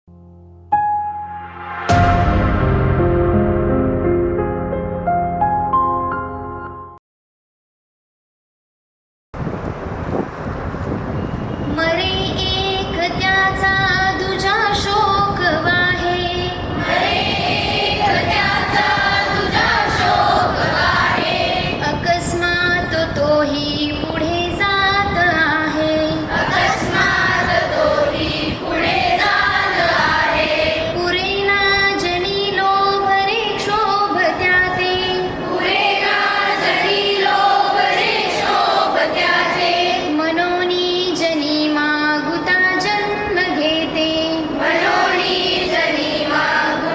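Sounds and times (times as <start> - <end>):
children singing in unison: 16.8 - 22.3, 26.1 - 31.3, 33.4 - 40.5, 44.4 - 46.9.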